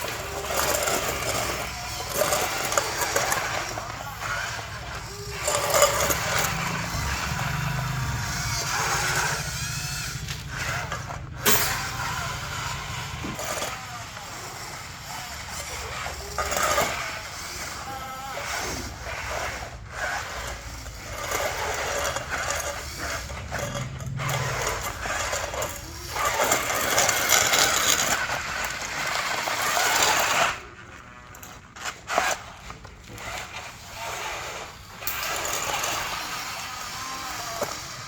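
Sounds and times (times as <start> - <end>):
small electric motors running: 0.0 - 38.0
toy tracks and blade scraping: 0.0 - 38.0.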